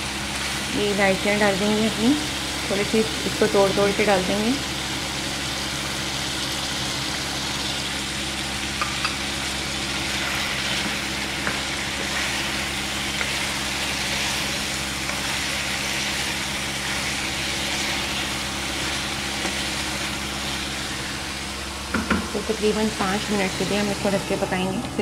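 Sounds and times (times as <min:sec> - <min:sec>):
food sizzling in oil: 0:00.0 - 0:25.0
steady low hum: 0:00.0 - 0:25.0
spatula stirring in pan: 0:09.8 - 0:21.4
spatula knocking on pan: 0:21.9 - 0:22.3.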